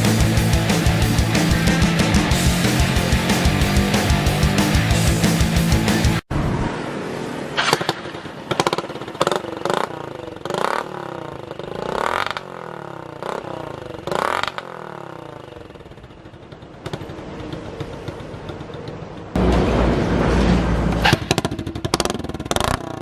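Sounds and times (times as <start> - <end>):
motorcycle engine revving and idling: 7.7 - 20.0, 20.7 - 23.0.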